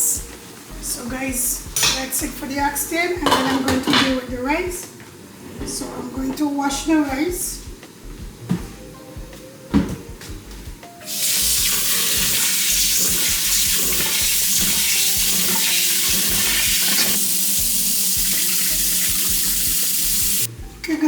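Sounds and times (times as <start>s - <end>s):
pot knock: 3.2s - 4.2s
tap water running into pot: 11.1s - 20.5s.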